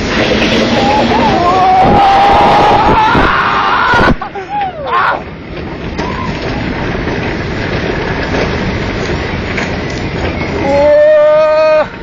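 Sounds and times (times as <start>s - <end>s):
roller coaster rumbling on track: 0.0s - 12.0s.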